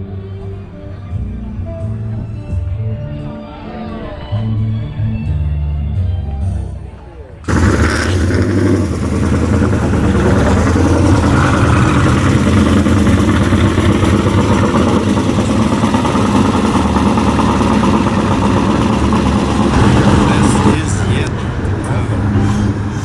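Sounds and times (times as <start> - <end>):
car engine running: 7.5 - 23.0.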